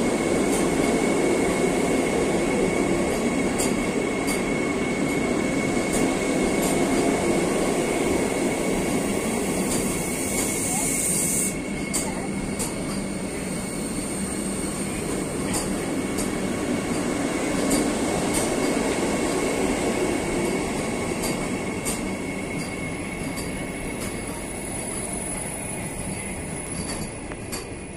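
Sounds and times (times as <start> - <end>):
train wheels rumbling on rail: 0.0 - 27.9.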